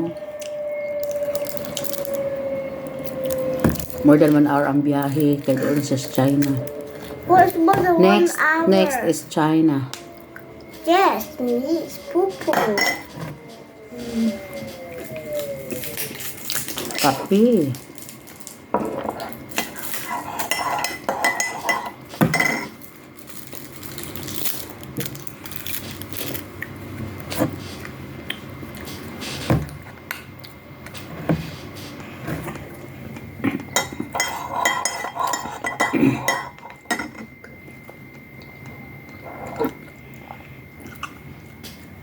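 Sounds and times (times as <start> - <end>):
cutlery clinking against dishes: 20.0 - 22.8, 33.7 - 37.3.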